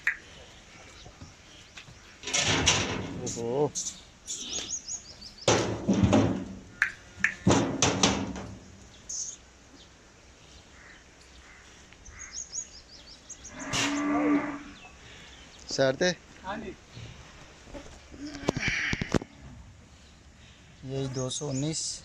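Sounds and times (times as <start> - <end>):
bird chirping: 3.2 - 5.7, 6.6 - 7.6, 8.5 - 15.9, 19.2 - 22.0.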